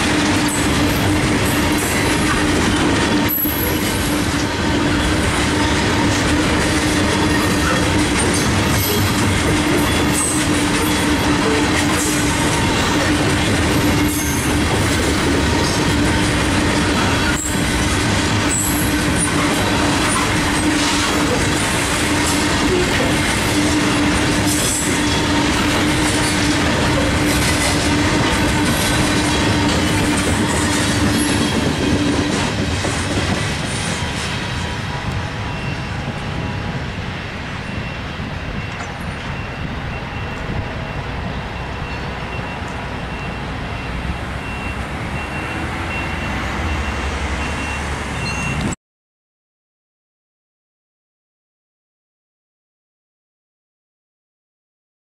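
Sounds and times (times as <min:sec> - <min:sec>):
wheels clacking over rail joints: 0:00.0 - 0:36.8
train wheel squeal: 0:00.0 - 0:48.8.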